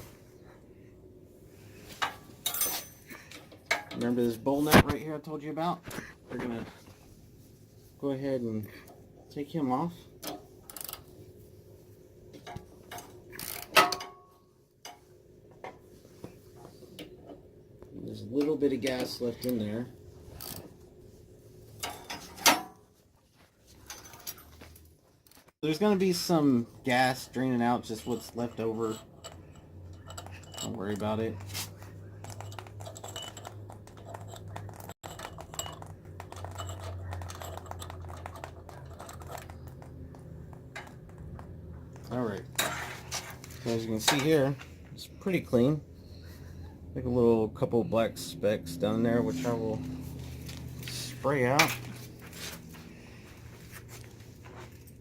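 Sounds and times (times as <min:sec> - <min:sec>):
steady low hum: 0:00.0 - 0:55.0
light clicks and taps of metal parts: 0:27.3 - 0:45.0.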